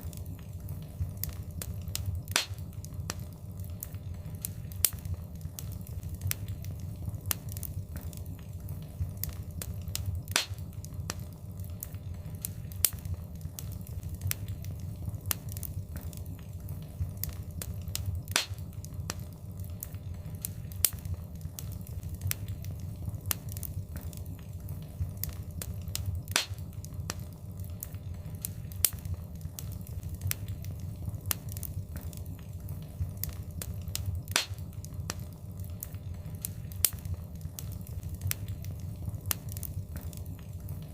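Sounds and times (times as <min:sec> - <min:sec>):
low rumble of burning: 0:00.0 - 0:40.9
wood fire crackling: 0:00.0 - 0:40.9
loud fire pop: 0:02.3 - 0:02.6, 0:10.3 - 0:10.6, 0:18.3 - 0:18.6, 0:26.3 - 0:26.6, 0:34.3 - 0:34.6.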